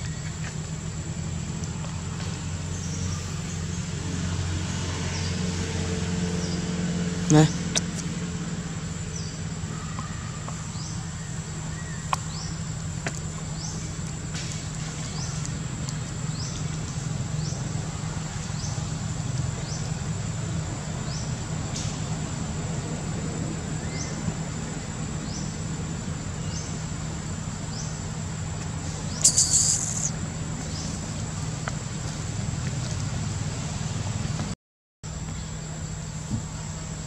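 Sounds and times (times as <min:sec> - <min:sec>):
high insect drone: 0:00.0 - 0:32.6
bird chirping: 0:29.1 - 0:30.9
high-pitched squeal: 0:29.2 - 0:30.2.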